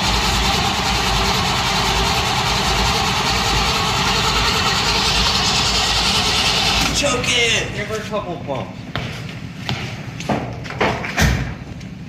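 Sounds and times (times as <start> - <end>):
car engine idling: 0.0 - 6.8.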